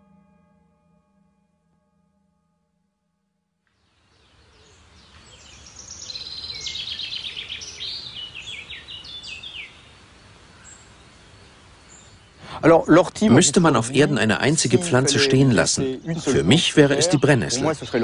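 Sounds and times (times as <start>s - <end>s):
songbird singing trills: 3.8s - 12.4s, 13.3s - 18.0s.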